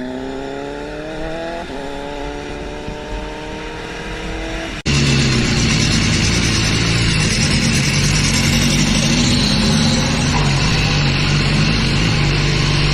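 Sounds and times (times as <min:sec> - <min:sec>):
motorcycle engine accelerating: 0:00.0 - 0:12.9
rough rush of noise: 0:04.7 - 0:12.9.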